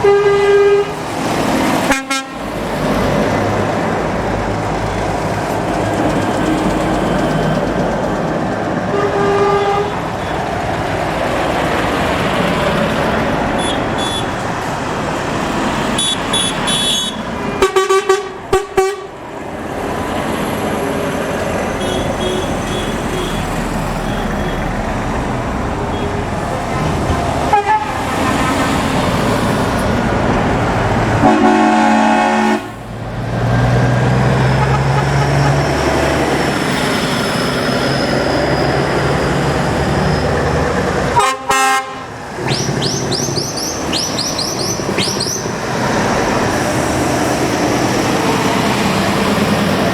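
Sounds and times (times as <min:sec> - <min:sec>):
air horns tooting: 0:00.0 - 0:01.0, 0:01.8 - 0:02.5, 0:08.9 - 0:10.3, 0:13.6 - 0:14.4, 0:16.0 - 0:19.2, 0:21.7 - 0:24.6, 0:27.5 - 0:28.4, 0:31.2 - 0:32.8, 0:34.6 - 0:35.7, 0:41.1 - 0:43.3
lorries driving past: 0:00.0 - 0:49.9.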